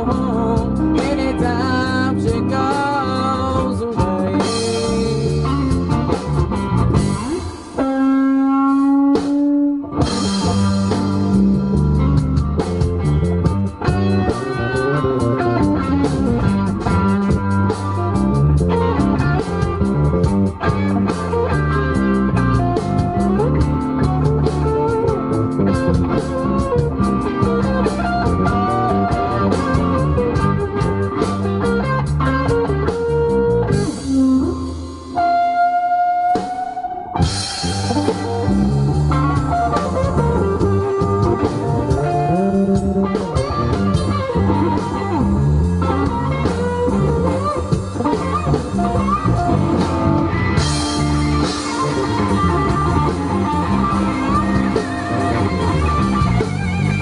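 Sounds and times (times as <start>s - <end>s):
bass: 0.0s - 57.0s
drums: 0.0s - 57.0s
electric guitar lead: 0.0s - 57.0s.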